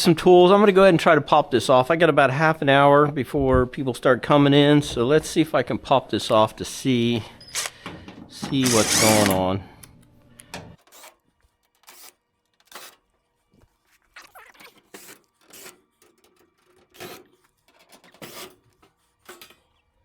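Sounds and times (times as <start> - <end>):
hand tools scraping and clicking: 7.5 - 7.8, 8.4 - 9.4.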